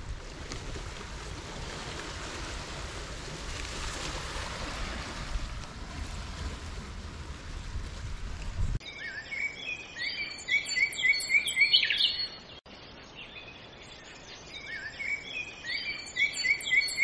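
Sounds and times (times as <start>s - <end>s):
wind rumbling on microphone: 0.0s - 8.8s
songbird chirping: 8.8s - 17.0s.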